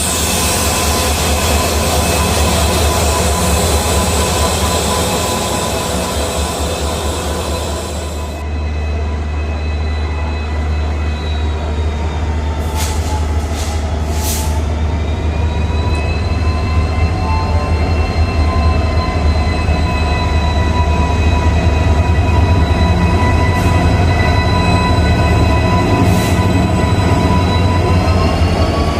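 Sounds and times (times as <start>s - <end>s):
diesel locomotive engine drone: 0.0s - 28.9s.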